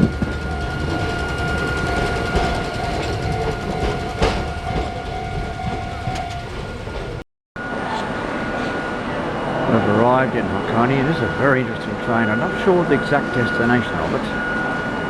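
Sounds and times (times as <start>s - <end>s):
train wheel clack: 0.0s - 7.2s
electric train running on track: 0.0s - 15.0s.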